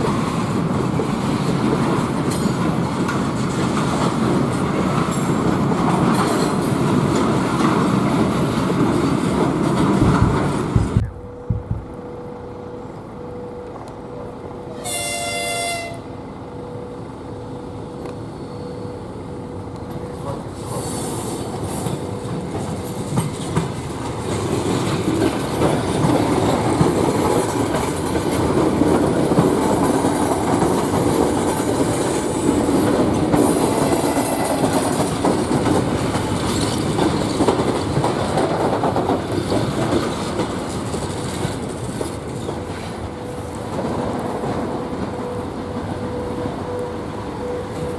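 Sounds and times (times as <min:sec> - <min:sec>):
train passing: 0:00.0 - 0:47.9
train horn blast: 0:14.6 - 0:16.2
wheels clattering over rail joints: 0:21.6 - 0:43.0.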